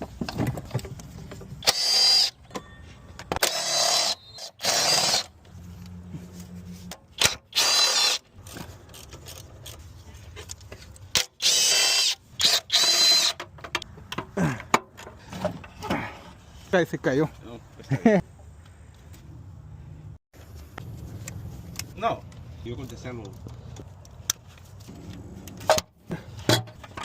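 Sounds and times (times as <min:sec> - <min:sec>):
power tool whining bursts: 0:03.4 - 0:05.3.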